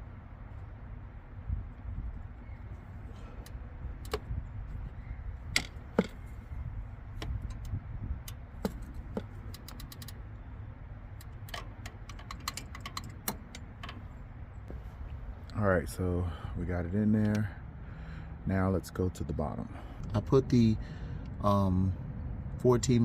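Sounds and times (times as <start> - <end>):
metallic clicks and taps of tools: 7.2 - 10.2, 11.2 - 14.0.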